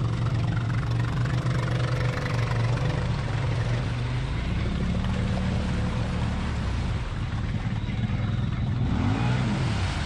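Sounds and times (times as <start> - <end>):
atv engine revving: 7.4 - 10.0.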